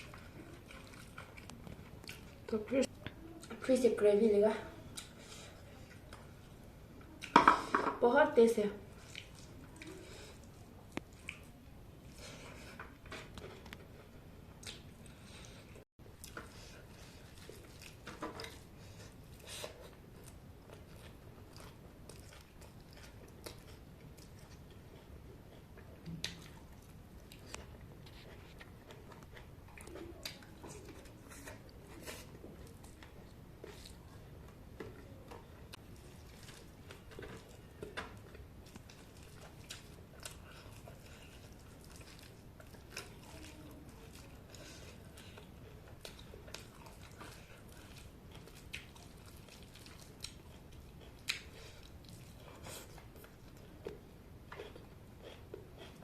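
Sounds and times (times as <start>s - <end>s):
person chewing and biting food: 16.1s - 35.0s, 35.8s - 56.0s.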